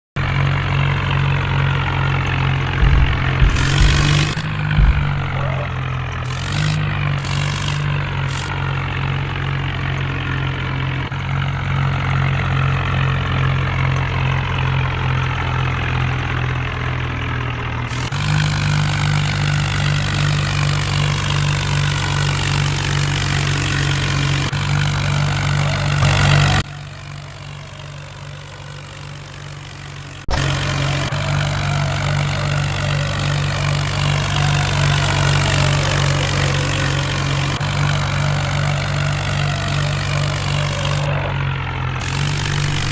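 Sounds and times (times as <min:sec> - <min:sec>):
tractor diesel engine running: 0:00.0 - 0:42.9
sharp knocks: 0:02.8 - 0:05.5.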